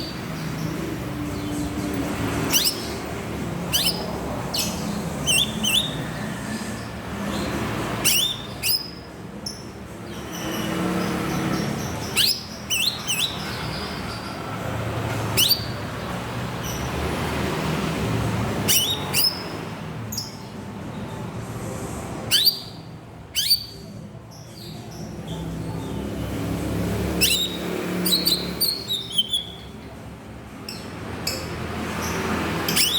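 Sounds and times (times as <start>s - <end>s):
bird giving sharp downward calls: 3.7s - 6.1s, 27.2s - 29.7s.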